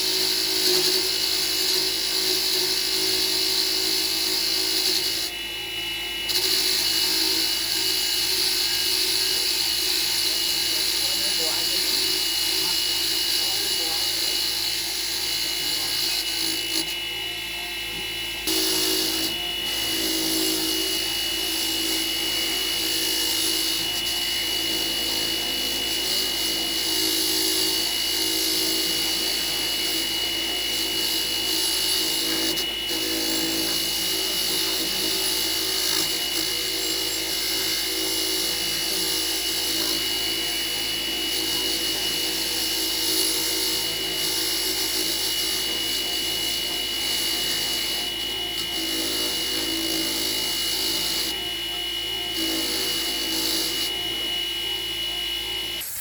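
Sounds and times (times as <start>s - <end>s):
power tool whining: 0.0s - 56.0s.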